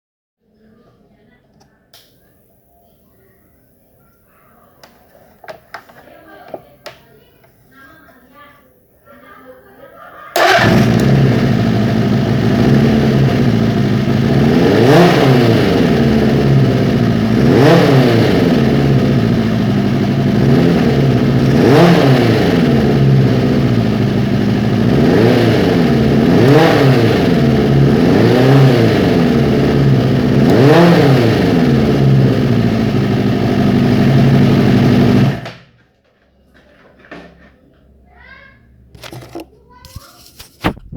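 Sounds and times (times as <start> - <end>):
motorcycle engine idling: 10.4 - 35.5
quick throttle revs: 10.4 - 35.5.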